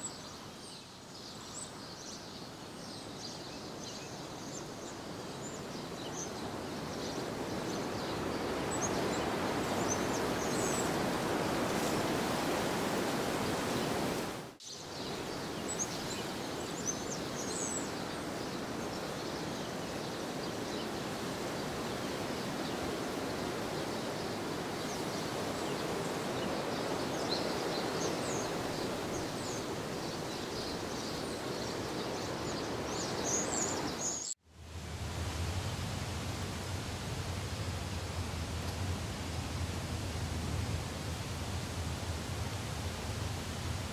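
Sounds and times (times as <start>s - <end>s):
small birds chirping: 0.0s - 12.1s, 12.8s - 34.4s.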